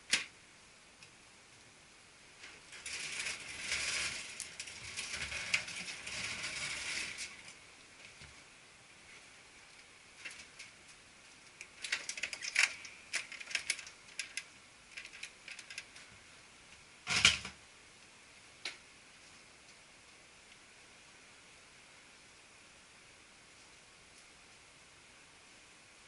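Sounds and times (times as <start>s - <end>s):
plastic clicks and rattles: 11.6s - 16.1s.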